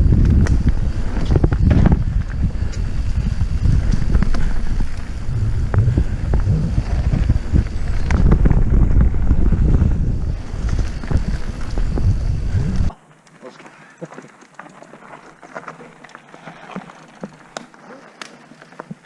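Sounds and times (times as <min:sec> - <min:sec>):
bike knocking and rattling: 0:00.0 - 0:12.9
wind buffeting microphone: 0:00.0 - 0:12.9.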